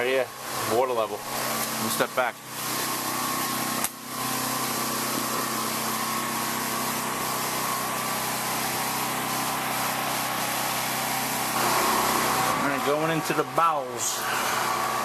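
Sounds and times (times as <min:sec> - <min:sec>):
small engine humming: 0:11.2 - 0:15.0.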